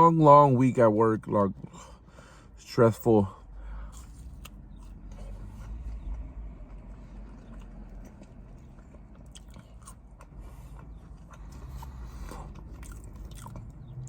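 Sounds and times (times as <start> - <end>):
person chewing food: 3.7 - 14.0.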